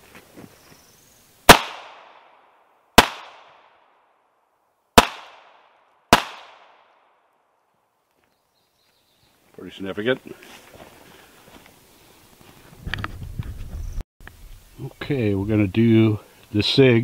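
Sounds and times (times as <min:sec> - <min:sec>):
pistol shots with echo: 0:01.5 - 0:02.4, 0:03.0 - 0:03.8, 0:05.0 - 0:07.2.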